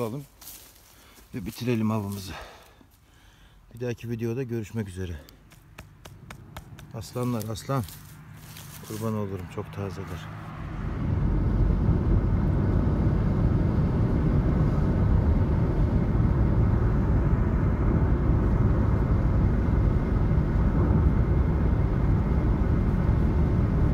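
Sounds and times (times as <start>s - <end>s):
vehicle running rumble: 3.8s - 23.9s.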